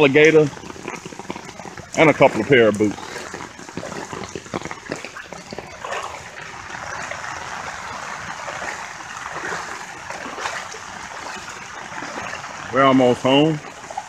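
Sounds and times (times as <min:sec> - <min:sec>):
footsteps wading through water: 0:00.0 - 0:14.0
pouring rain: 0:00.0 - 0:14.0
water splashes: 0:00.0 - 0:14.0.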